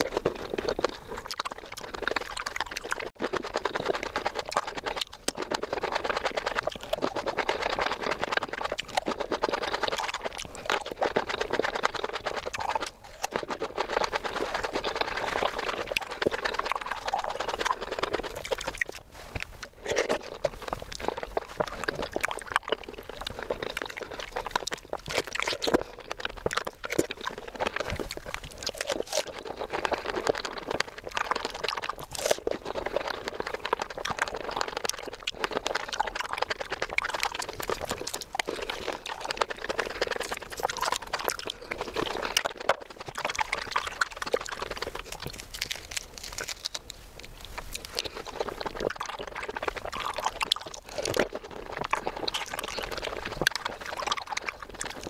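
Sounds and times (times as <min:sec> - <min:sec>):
chewing juicy fruit: 0:00.0 - 0:55.0.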